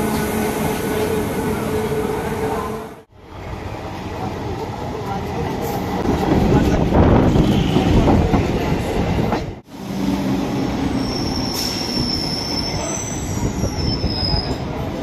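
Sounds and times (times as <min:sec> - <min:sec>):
train rattling and rumbling past: 0:00.0 - 0:15.0
high-pitched wheel squeal: 0:11.0 - 0:14.7.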